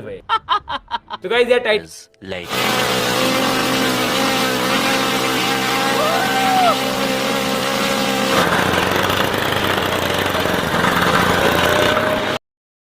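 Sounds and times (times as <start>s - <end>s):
model engine buzzing: 2.4s - 12.4s.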